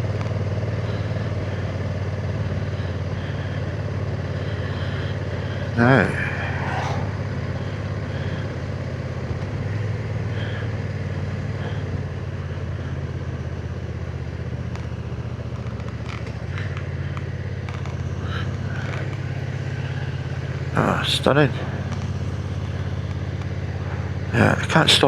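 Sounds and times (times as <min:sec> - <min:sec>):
motorcycle engine running: 0:00.0 - 0:05.9, 0:07.2 - 0:20.7.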